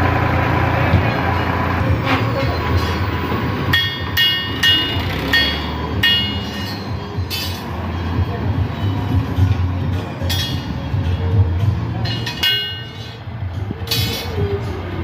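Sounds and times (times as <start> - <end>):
engine running: 0.0 - 15.0
sharp metal clanks: 3.7 - 8.1, 8.8 - 10.8, 12.0 - 13.2, 13.8 - 14.5.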